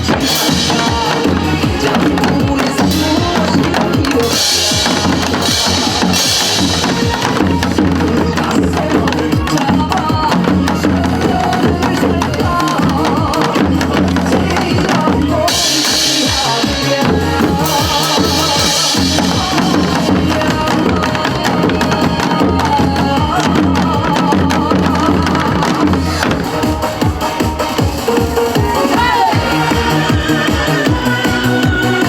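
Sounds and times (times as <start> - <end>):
backing music with bass beat: 0.0 - 32.0
drums played in rhythm: 0.0 - 32.0
bright hissing wash: 0.3 - 7.4.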